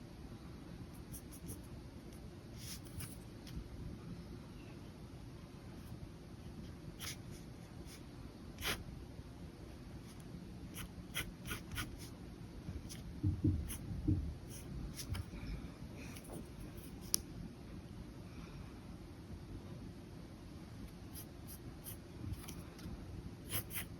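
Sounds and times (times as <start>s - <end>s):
pen scratching on paper: 7.0s - 8.0s, 8.6s - 8.8s, 10.7s - 12.1s, 23.4s - 23.9s.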